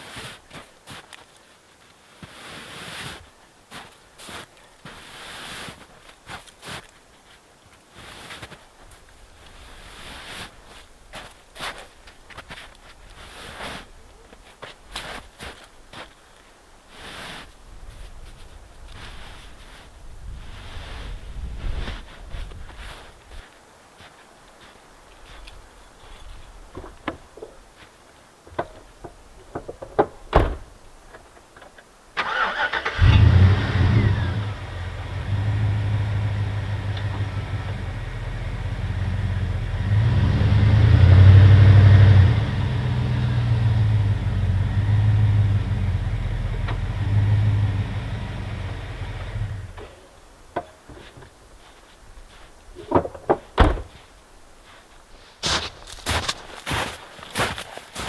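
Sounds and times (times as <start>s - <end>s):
engine running with low hum: 33.0s - 49.9s.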